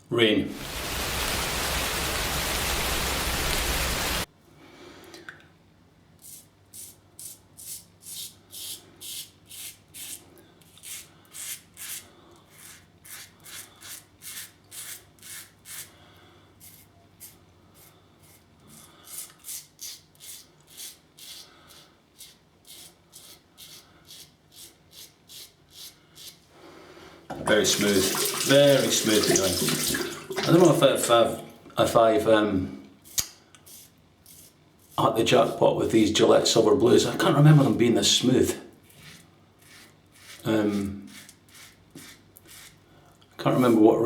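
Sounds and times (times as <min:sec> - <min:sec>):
loud steady hiss: 0:00.5 - 0:04.3
razor scraping stubble: 0:33.0 - 0:35.6, 0:38.8 - 0:42.8, 0:43.5 - 0:43.9.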